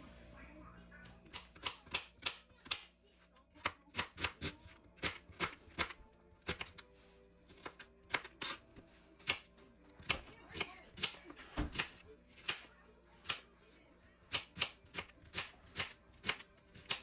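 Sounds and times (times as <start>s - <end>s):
knife chopping on cutting board: 1.2s - 2.9s, 3.6s - 6.8s, 7.5s - 13.4s, 14.3s - 17.0s.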